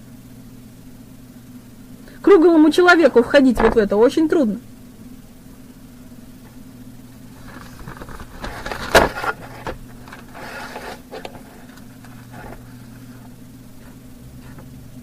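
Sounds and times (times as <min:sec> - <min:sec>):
steady low hum: 0:00.0 - 0:15.0
rustling and handling noise: 0:06.4 - 0:14.7.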